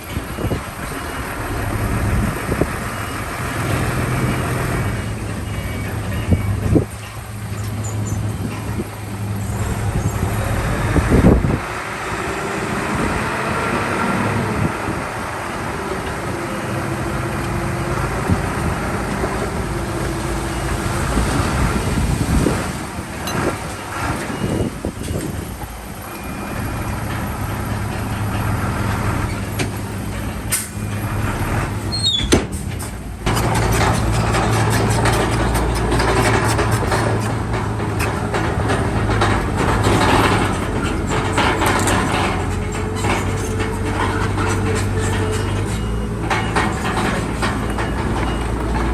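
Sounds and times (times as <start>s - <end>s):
diesel engine drone: 0.0s - 48.9s
knocks and clanks: 26.2s - 48.9s
high squeal: 31.9s - 32.4s.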